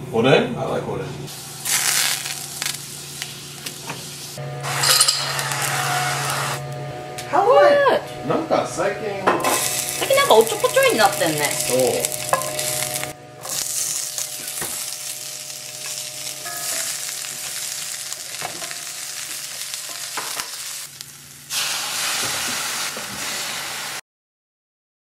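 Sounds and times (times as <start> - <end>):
food sizzling in a frying pan: 1.3 - 6.6, 9.4 - 24.0.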